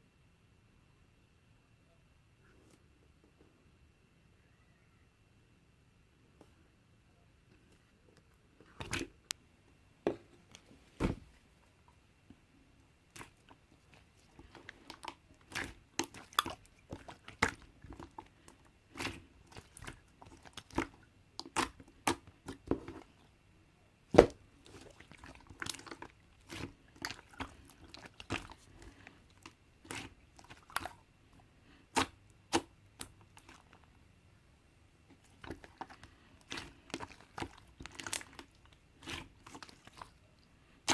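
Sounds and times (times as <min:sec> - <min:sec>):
slime popping and crackling: 0:13.1 - 0:18.3, 0:18.9 - 0:22.7, 0:35.3 - 0:40.1.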